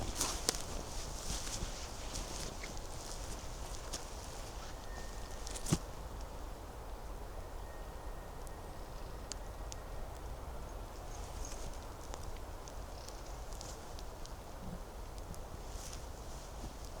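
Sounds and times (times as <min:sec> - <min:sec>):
footsteps on twigs and leaves: 0:00.0 - 0:05.9.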